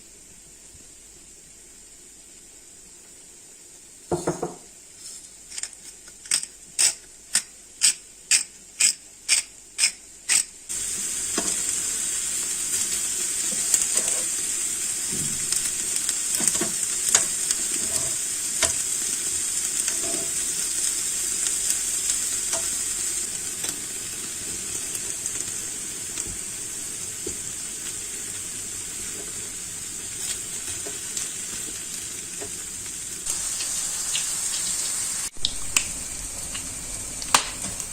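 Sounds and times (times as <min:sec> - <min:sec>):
food sizzling in frying pan: 0:07.8 - 0:37.9
stirring scrapes and knocks: 0:13.5 - 0:14.3, 0:16.4 - 0:18.8, 0:19.9 - 0:20.4.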